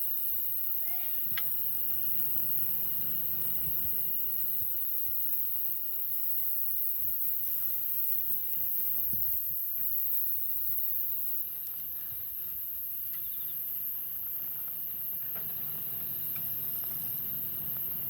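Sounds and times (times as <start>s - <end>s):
meat grilling over campfire hiss: 0.0s - 18.0s.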